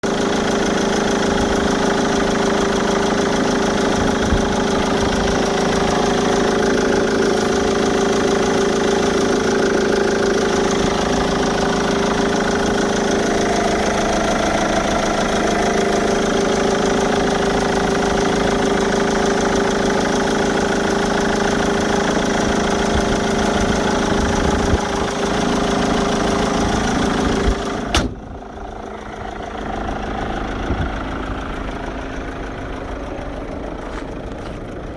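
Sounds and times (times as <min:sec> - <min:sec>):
suv engine idling: 0:00.0 - 0:34.9
sharp click: 0:27.9 - 0:28.2.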